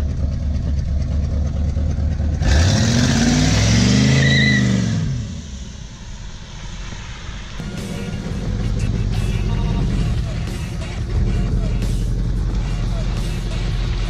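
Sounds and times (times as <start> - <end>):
car engine idling: 0.0 - 4.2, 4.9 - 14.0
car engine revving and accelerating: 1.3 - 5.8.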